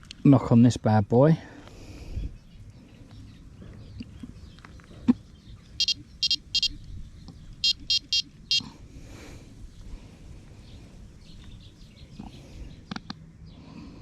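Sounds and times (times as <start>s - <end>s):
bite alarm bleeps: 5.8s - 6.8s, 7.6s - 8.6s.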